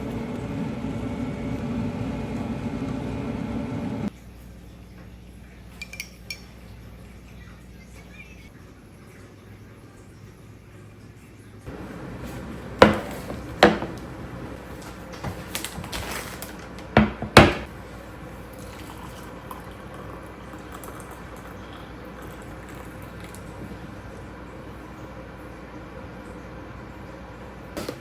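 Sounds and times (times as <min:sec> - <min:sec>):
sharp ringing kitchen knocks: 0:11.7 - 0:14.6, 0:16.9 - 0:17.7
light kitchen rattling: 0:11.7 - 0:25.2.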